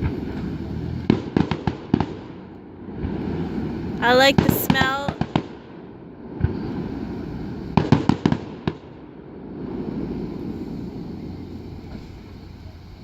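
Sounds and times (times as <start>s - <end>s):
fireworks bangs: 1.1s - 3.4s, 4.0s - 11.1s.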